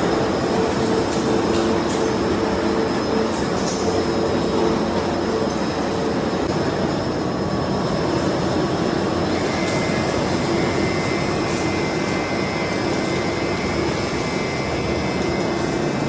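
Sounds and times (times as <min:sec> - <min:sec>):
machinery droning: 0:00.0 - 0:16.0.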